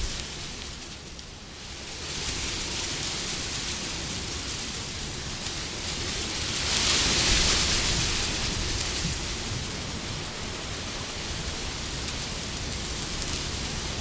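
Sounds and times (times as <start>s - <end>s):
wind blowing: 0.0s - 0.4s.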